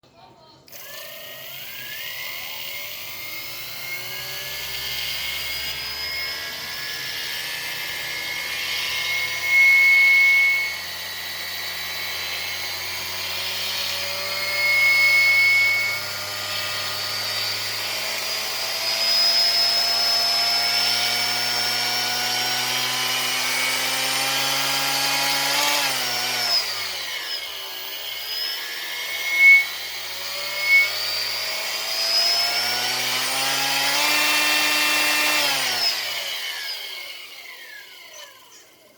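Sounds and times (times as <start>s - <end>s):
electric motor whining: 0.7s - 38.9s
high squeal: 8.1s - 11.1s, 14.1s - 17.5s, 24.8s - 31.4s.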